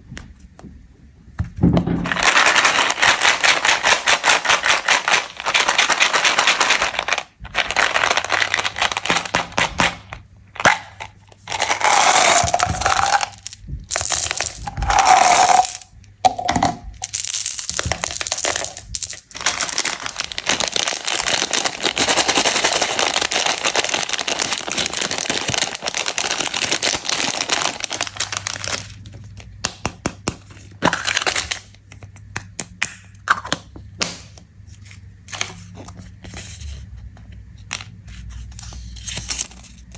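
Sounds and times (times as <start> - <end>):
plastic wrappers crinkling: 2.0 - 29.5, 30.6 - 31.8, 37.7 - 39.9.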